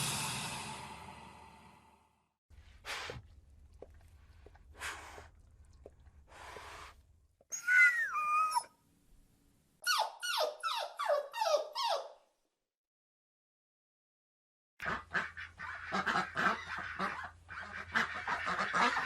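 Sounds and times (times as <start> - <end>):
dog whining: 7.5 - 8.7, 9.8 - 12.2
dog yelping: 7.5 - 8.7, 9.8 - 12.2.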